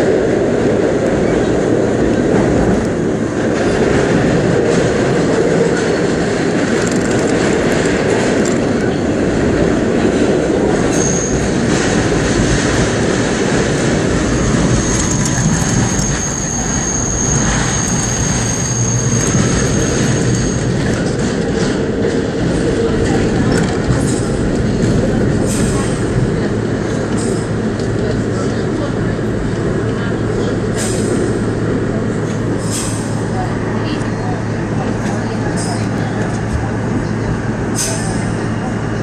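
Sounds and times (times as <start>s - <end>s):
subway train wheels rumbling: 0.0s - 39.0s
high-pitched wheel squeal: 10.9s - 11.4s, 14.5s - 20.8s.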